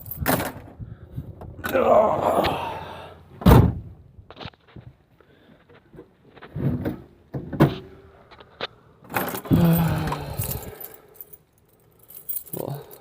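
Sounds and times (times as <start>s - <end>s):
handling rustles: 8.4s - 13.0s
keys jangling: 9.2s - 13.0s.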